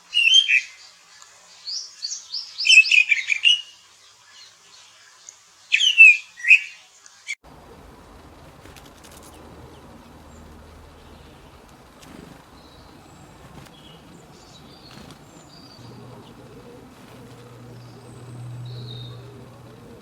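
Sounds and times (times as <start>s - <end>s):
background hiss: 0.0s - 20.0s
songbird chirping: 0.0s - 20.0s
low hum: 7.4s - 20.0s.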